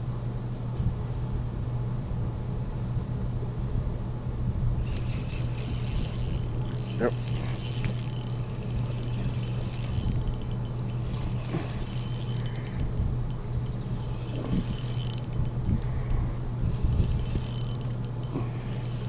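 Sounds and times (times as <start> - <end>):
low motor hum: 4.6 - 19.0
light ticks and clicks: 4.8 - 19.0.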